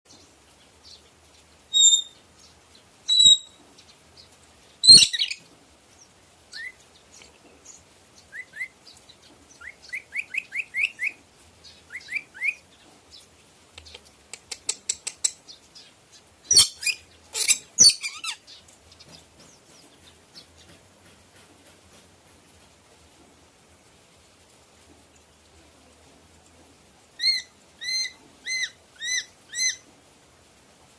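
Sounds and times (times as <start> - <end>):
parrot calling: 4.8 - 5.4, 16.5 - 18.4, 27.2 - 29.8.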